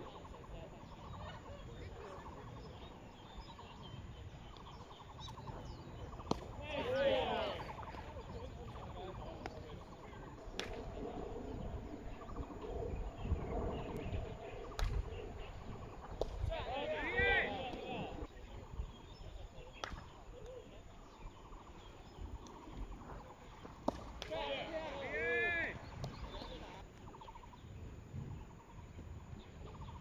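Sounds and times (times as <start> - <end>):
outdoor background noise: 0.0 - 30.0
players shouting: 6.2 - 12.6, 14.7 - 18.3, 24.1 - 26.8.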